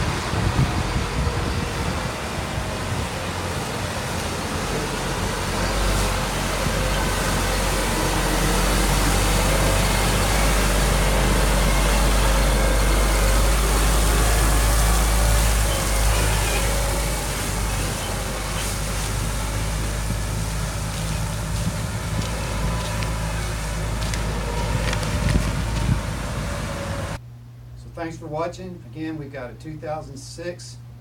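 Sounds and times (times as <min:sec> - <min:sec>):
diesel truck engine rumbling: 0:00.0 - 0:27.2.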